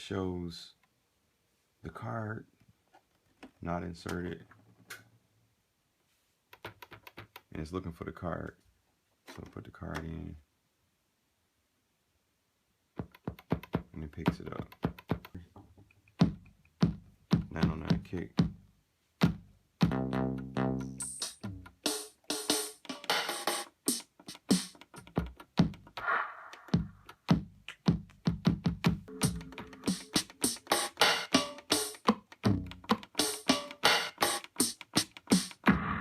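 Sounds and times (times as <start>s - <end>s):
drum machine kick drum hits: 16.2s - 18.6s, 19.2s - 20.2s, 21.9s - 36.0s
bright hissy drum machine hits: 26.0s - 27.0s, 29.1s - 32.0s, 35.3s - 36.0s.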